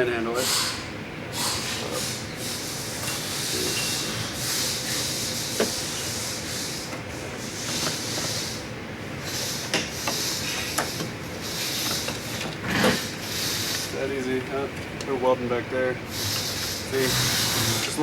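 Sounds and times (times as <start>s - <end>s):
welding hiss and crackle: 1.4s - 14.2s.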